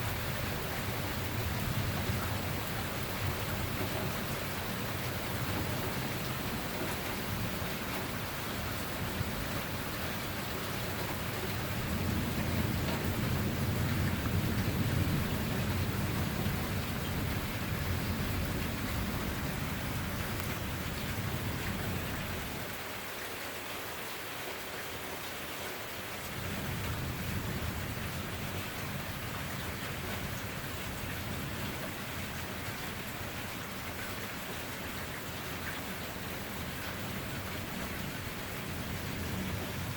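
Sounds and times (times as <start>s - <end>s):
steady rain: 0.0s - 39.9s
low thunder rumble: 10.9s - 22.6s.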